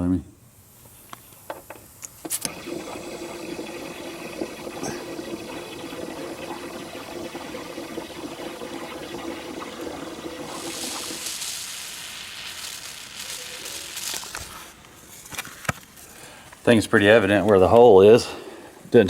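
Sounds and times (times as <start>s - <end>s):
air hissing from tire: 10.5s - 16.5s.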